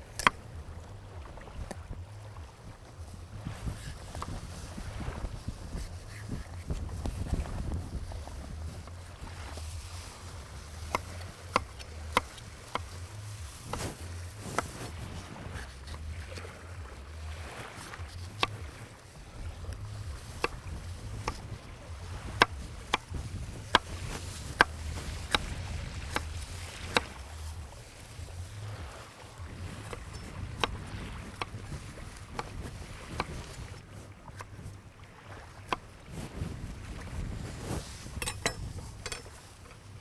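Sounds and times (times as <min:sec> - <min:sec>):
low rumble: 0:00.0 - 0:32.4.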